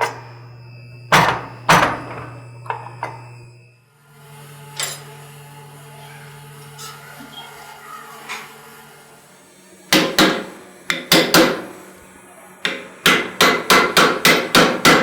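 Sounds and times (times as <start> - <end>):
hammer striking metal on anvil: 9.9 - 11.7, 12.7 - 15.0.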